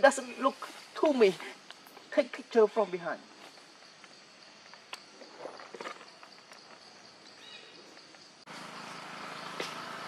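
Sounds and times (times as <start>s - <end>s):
high insect drone: 0.0s - 10.0s.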